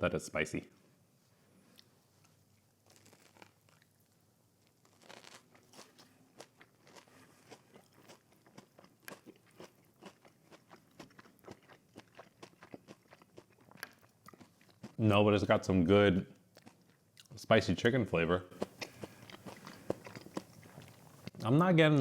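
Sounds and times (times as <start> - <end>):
crunchy chewing of fried food: 1.7 - 15.1, 16.4 - 17.4, 18.5 - 21.5.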